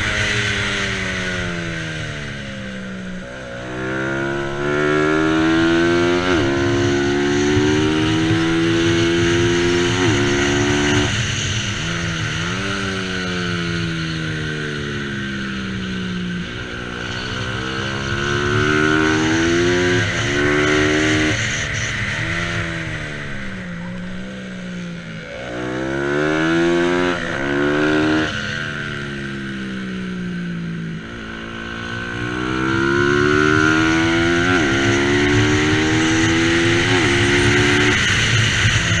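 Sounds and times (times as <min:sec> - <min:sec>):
motorcycle engine revving high: 0:00.0 - 0:39.0.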